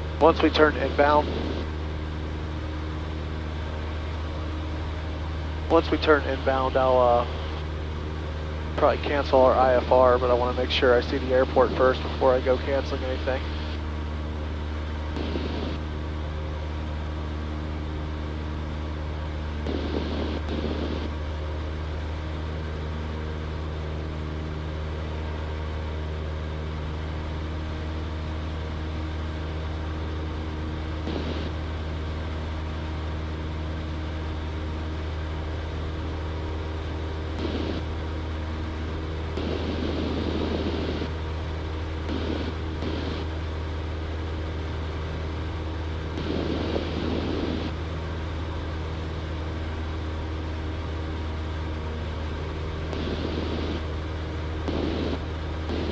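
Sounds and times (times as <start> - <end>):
propeller plane engine droning: 0.0 - 55.9
bursts of noise: 15.2 - 15.8, 19.7 - 21.1, 31.1 - 31.6, 37.4 - 38.0, 39.3 - 41.1, 42.1 - 43.3, 46.2 - 47.8, 53.0 - 53.8, 54.7 - 55.9.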